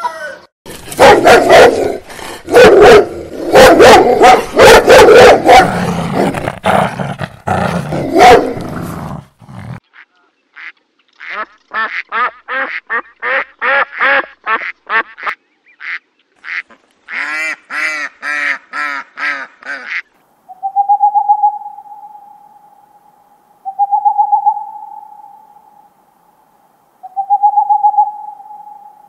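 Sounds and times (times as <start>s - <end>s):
ducks quacking: 9.9s - 20.1s
owl hooting: 20.5s - 22.9s, 23.6s - 25.8s, 27.0s - 29.0s.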